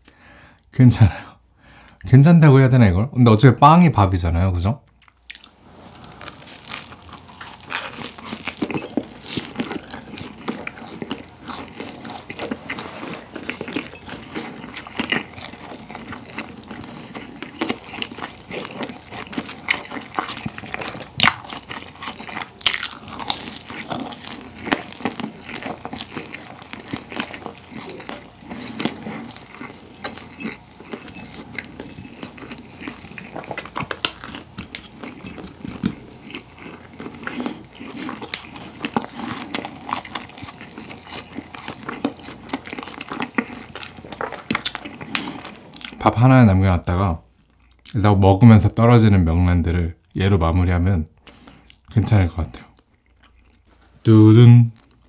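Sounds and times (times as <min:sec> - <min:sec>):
wet chewing: 0:04.9 - 0:46.0, 0:52.6 - 0:54.0
crunching crusty bread: 0:05.0 - 0:46.0.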